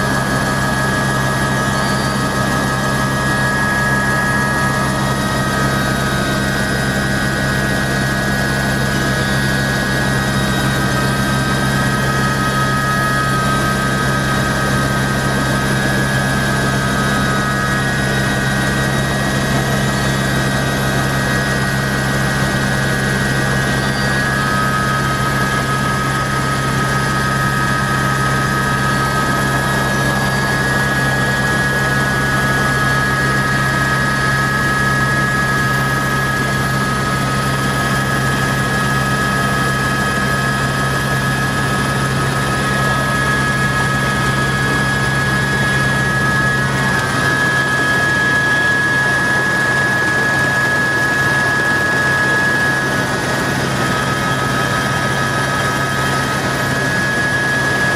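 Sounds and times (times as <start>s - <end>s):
helicopter drone: 0.0s - 57.9s
high whine: 0.0s - 57.9s.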